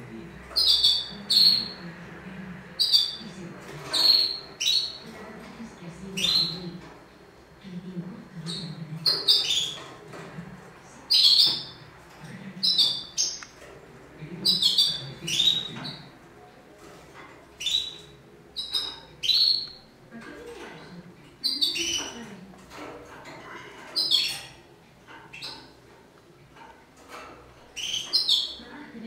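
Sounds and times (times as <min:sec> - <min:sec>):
bird chirping: 0:00.5 - 0:01.9, 0:02.8 - 0:05.3, 0:06.0 - 0:07.0, 0:08.4 - 0:10.3, 0:11.0 - 0:16.2, 0:16.8 - 0:25.9, 0:27.0 - 0:28.7.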